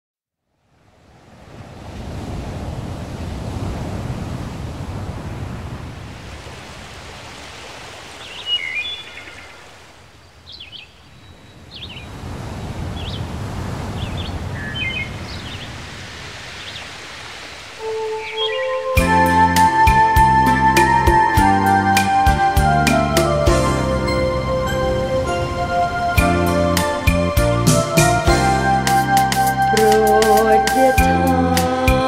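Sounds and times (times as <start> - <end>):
waves surging: 0.7 - 10.2, 11.6 - 31.1
small birds chirping: 8.2 - 12.2, 14.0 - 15.8, 18.0 - 19.0.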